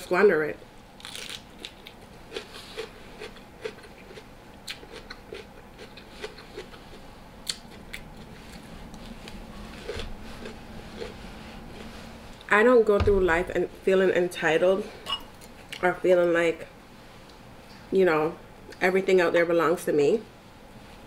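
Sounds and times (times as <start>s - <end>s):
person chewing food: 1.0s - 12.5s.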